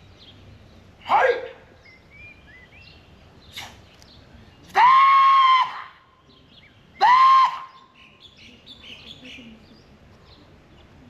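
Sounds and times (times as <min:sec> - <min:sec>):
high ceremonial calls: 0:01.0 - 0:02.4, 0:04.7 - 0:08.0.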